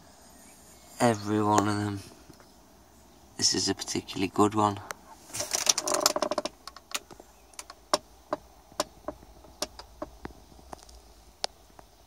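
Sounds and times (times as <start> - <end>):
sharp clicks and taps: 5.6 - 11.6.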